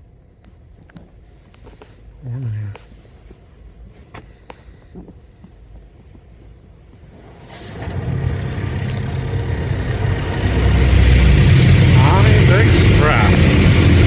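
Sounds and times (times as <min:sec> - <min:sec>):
car wash machinery rumble: 0:07.1 - 0:14.0
broad noisy wash: 0:07.5 - 0:14.0.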